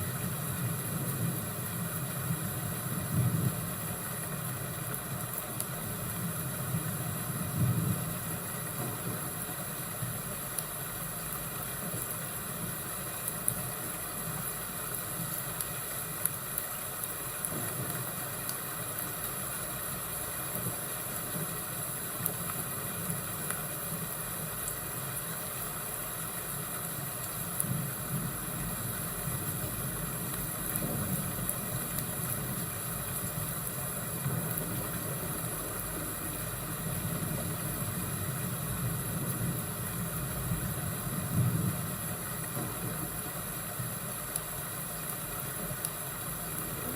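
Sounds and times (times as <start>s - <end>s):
steady hiss: 0.0s - 46.9s
fire crackling pops: 4.1s - 6.2s, 7.9s - 10.8s, 11.4s - 14.0s, 14.9s - 24.0s, 27.1s - 37.8s.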